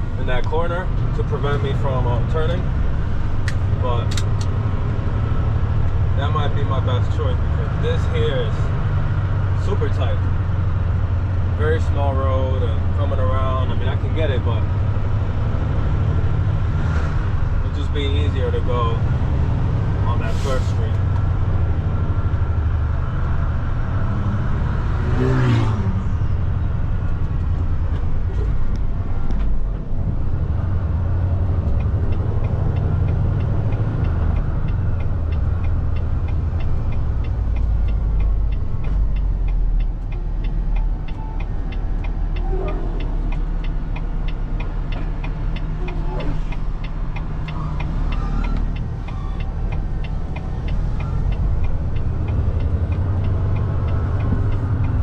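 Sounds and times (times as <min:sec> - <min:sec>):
diesel truck engine running: 0:00.0 - 0:55.0
regular ticking: 0:26.2 - 0:55.0.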